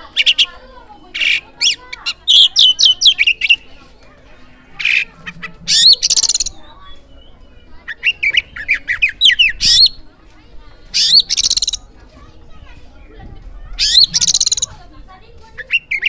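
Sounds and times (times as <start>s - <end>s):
bird whistling song: 1.2s - 3.7s, 4.8s - 10.0s, 10.9s - 11.9s, 13.8s - 14.8s, 15.6s - 16.0s
bird rattling trill: 4.8s - 6.7s, 10.9s - 12.0s, 13.7s - 16.0s.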